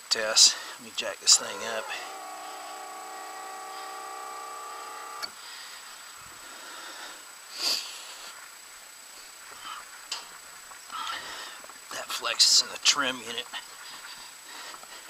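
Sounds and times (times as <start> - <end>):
electric motor whining: 1.2 - 5.4
motor cutoff click: 1.3 - 5.4.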